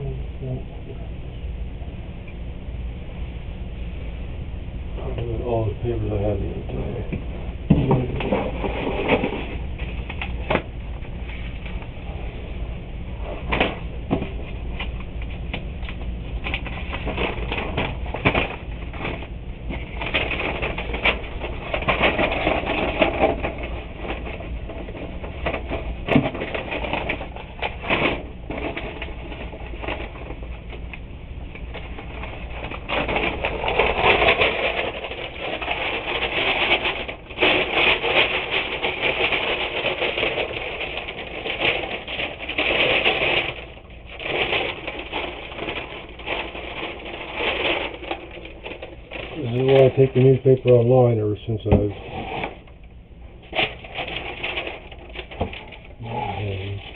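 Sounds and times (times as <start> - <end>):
newspaper rustling and crinkling: 13.2 - 52.7, 53.5 - 56.9.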